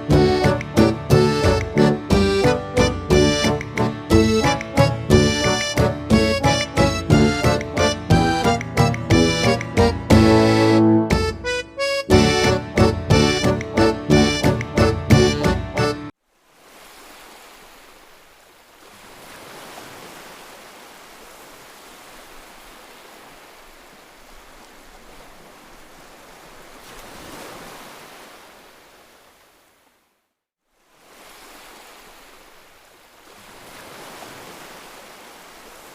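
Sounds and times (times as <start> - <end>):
waves washing onto beach: 16.3 - 30.0, 30.7 - 35.9.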